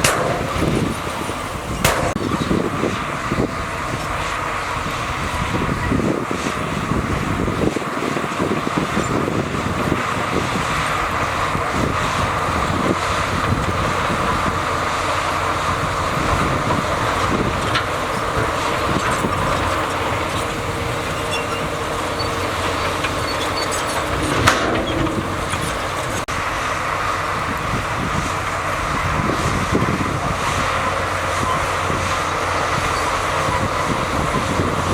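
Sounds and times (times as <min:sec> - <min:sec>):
heavy diesel machinery running: 0:00.0 - 0:34.9.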